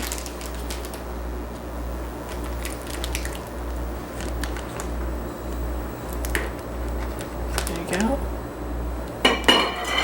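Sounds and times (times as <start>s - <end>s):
plastic bag squishing and crinkling: 0.0s - 1.2s, 2.2s - 5.3s, 6.1s - 8.2s
steady low hum: 0.0s - 10.0s.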